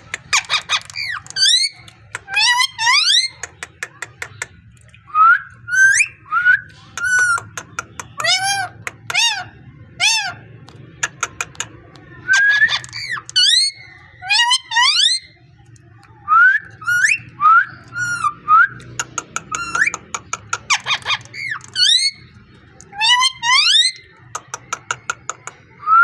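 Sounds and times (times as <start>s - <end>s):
parrot clicking: 0.0s - 5.0s, 7.0s - 9.2s, 10.6s - 12.1s, 12.7s - 13.7s, 18.8s - 25.7s
parrot whistling: 16.4s - 18.7s.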